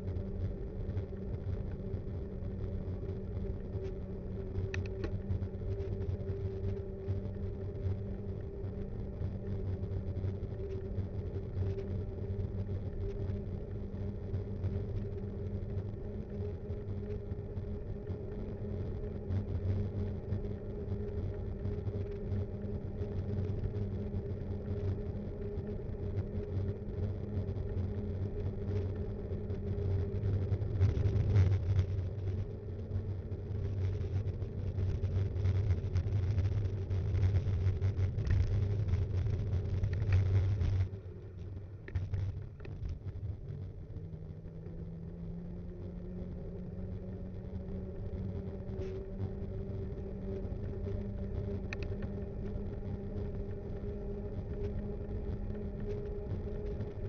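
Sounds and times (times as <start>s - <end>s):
bike tyres rumbling on road: 28.0s - 57.0s.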